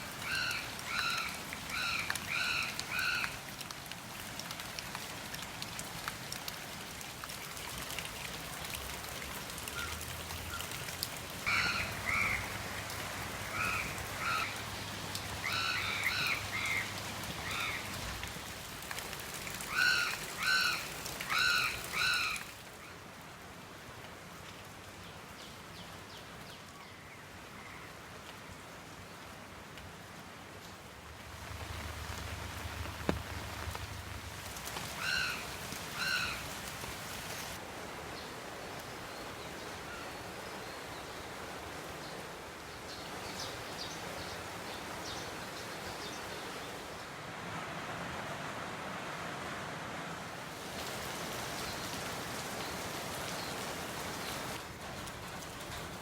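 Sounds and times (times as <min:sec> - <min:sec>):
rain falling: 0:00.0 - 0:56.0
bird calling: 0:00.2 - 0:03.3, 0:11.5 - 0:12.6, 0:15.3 - 0:17.8, 0:34.8 - 0:36.6.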